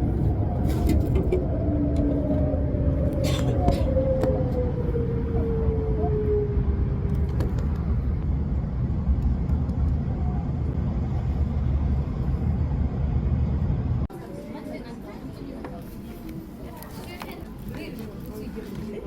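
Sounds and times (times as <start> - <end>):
train rumble inside carriage: 0.0 - 14.1.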